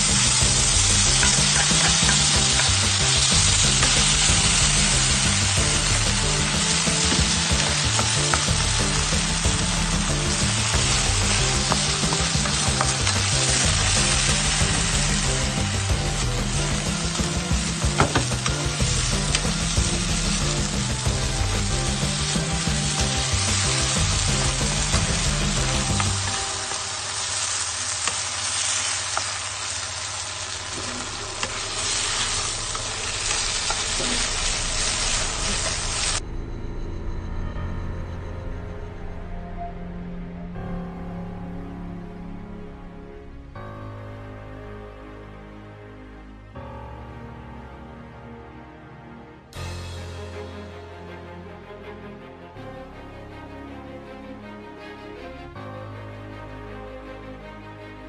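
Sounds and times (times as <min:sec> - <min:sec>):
food sizzling in a pan: 0:00.0 - 0:36.2
wooden utensils scraping a pan: 0:01.0 - 0:03.2.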